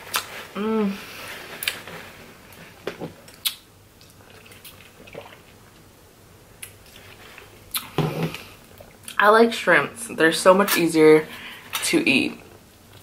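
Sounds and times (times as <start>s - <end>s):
wet eating smacks: 3.3s - 5.6s.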